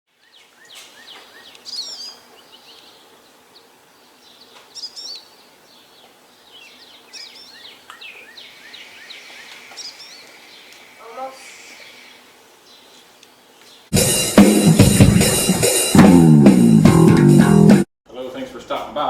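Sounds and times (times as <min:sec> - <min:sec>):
songbird warbled phrase: 0:06.5 - 0:12.9.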